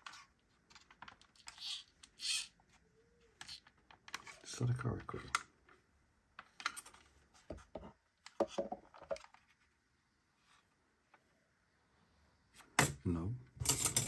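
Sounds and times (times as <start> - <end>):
plastic toy parts clicking: 0.1 - 2.5, 3.4 - 4.3.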